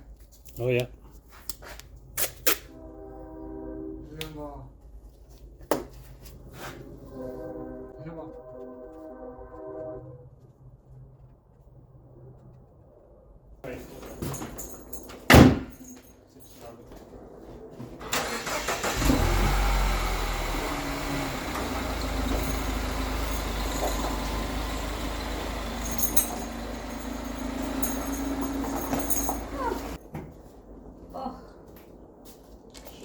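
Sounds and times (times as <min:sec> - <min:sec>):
vehicle engine starting and idling: 0:17.8 - 0:30.0.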